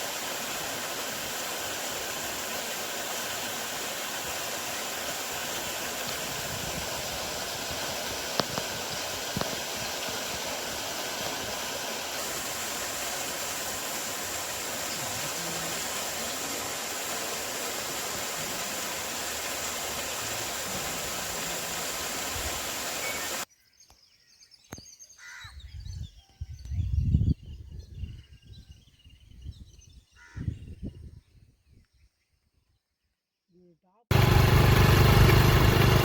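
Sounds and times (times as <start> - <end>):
waterfall rushing: 0.0 - 23.5.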